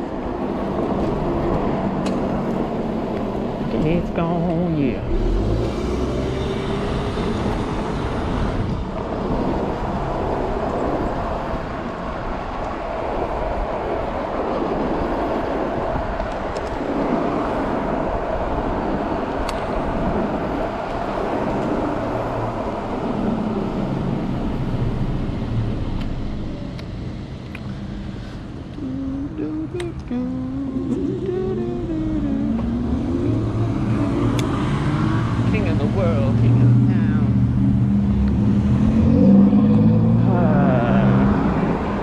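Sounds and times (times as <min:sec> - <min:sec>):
road and traffic noise: 0:00.0 - 0:42.0
faint wavering hum: 0:27.7 - 0:36.4.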